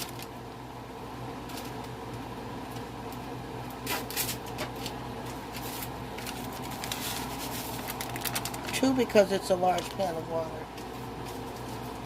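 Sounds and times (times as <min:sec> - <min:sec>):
steady low hum: 0:00.0 - 0:12.0
pouches crinkling and rustling: 0:04.0 - 0:12.0.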